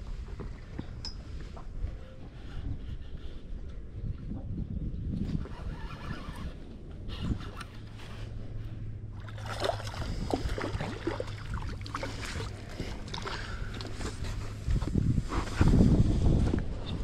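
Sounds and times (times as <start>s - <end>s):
steady low hum: 0.0s - 17.0s
water splashing against kayak: 9.2s - 14.9s.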